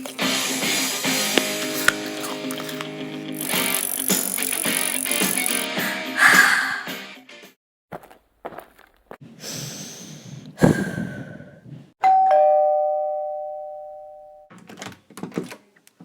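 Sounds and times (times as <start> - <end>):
doorbell two-note chime: 12.0 - 14.5.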